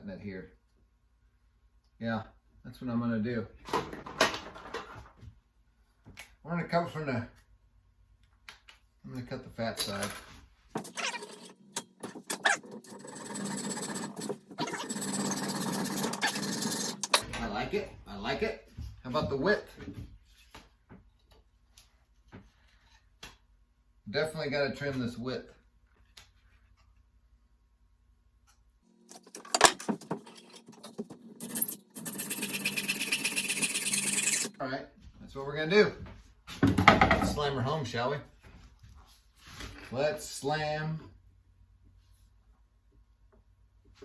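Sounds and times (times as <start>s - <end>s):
saw cutting wood: 10.8s - 17.2s, 30.0s - 34.5s
tools clicking and knocking: 29.1s - 32.2s.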